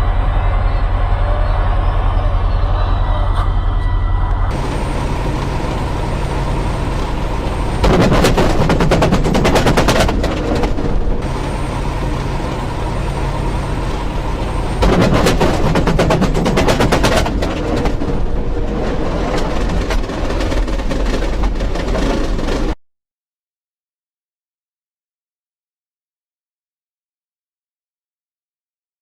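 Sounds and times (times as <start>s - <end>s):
truck engine drone: 0.0s - 22.8s
rapid even rattle: 4.5s - 22.8s.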